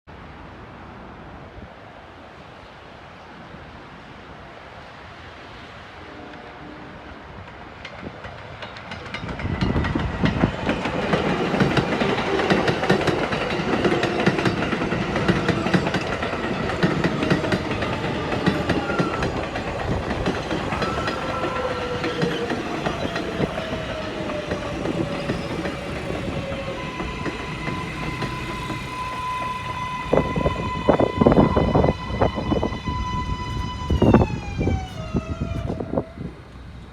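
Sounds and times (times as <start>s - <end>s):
train wheels clattering over rails: 7.4s - 30.5s
train wheels screeching: 8.4s - 36.9s.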